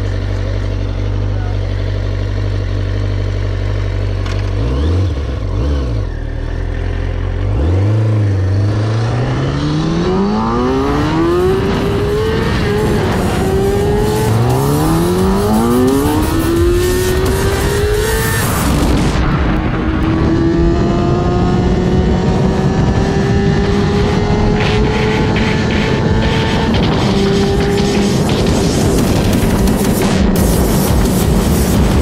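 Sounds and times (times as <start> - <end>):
motorcycle engine revving and accelerating: 0.0 - 32.0.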